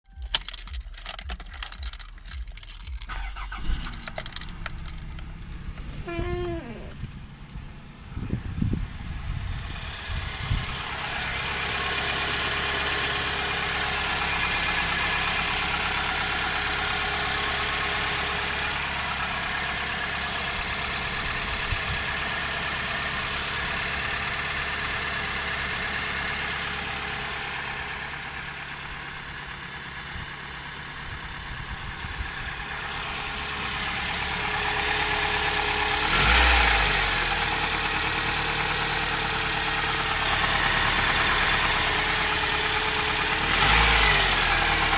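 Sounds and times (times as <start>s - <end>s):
car engine idling with knock: 0.1s - 44.9s.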